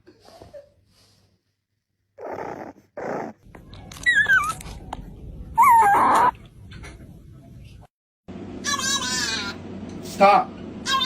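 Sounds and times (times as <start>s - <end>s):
dog growling: 2.2s - 3.4s
dog whining: 2.2s - 4.7s, 5.6s - 6.4s.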